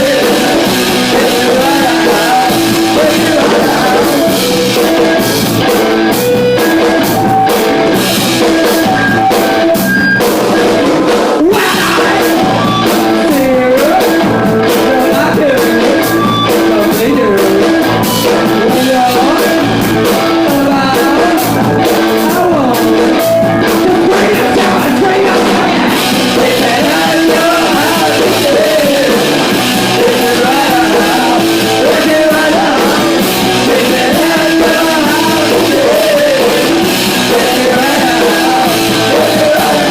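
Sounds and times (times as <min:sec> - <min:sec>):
person singing: 0:00.0 - 0:09.8, 0:11.4 - 0:39.9
rock band playing live: 0:00.0 - 0:39.9.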